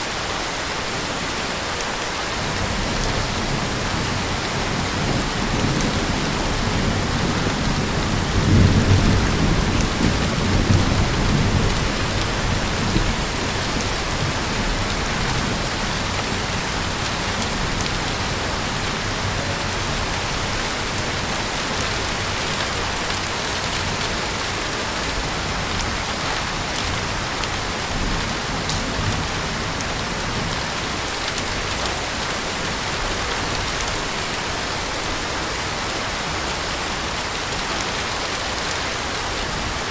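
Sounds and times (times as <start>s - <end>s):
heavy rain falling: 0.0s - 39.9s
low rumble of thunder: 2.5s - 33.8s.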